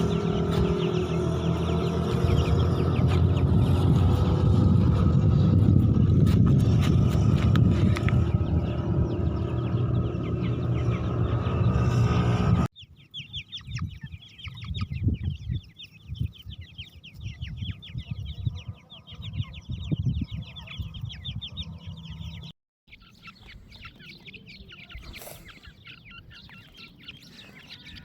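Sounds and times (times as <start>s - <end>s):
low rumble: 0.0s - 12.7s
chicks peeping: 0.0s - 28.0s.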